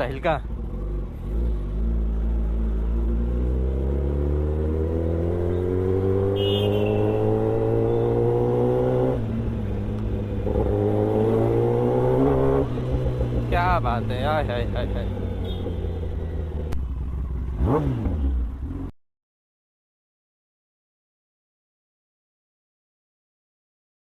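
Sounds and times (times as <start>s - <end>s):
motorcycle engine accelerating: 0.0s - 18.9s.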